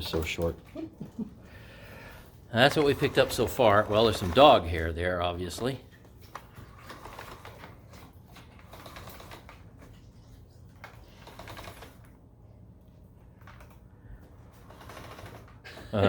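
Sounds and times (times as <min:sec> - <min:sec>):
vacuum cleaner clicking and rattling: 0:02.6 - 0:04.9, 0:06.3 - 0:09.9, 0:10.8 - 0:12.2, 0:13.3 - 0:16.0.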